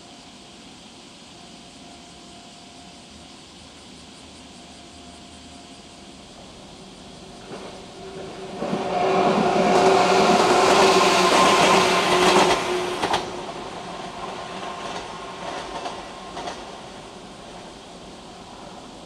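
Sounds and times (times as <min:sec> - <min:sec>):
train wheels rushing past: 0:06.3 - 0:19.0.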